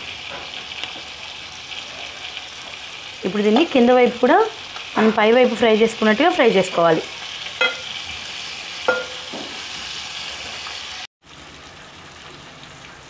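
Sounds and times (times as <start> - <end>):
chicken sizzling in a pan: 0.0 - 13.0
metal spoon clinking on pan: 7.6 - 8.0, 8.9 - 9.4.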